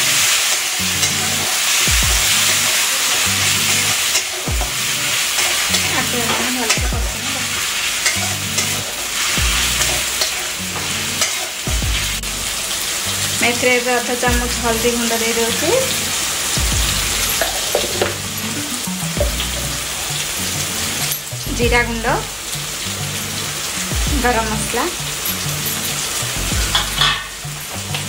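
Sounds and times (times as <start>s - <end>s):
metal spatula scraping a pan: 0.0s - 11.7s, 25.2s - 27.4s
onions sizzling in hot oil: 0.0s - 28.0s.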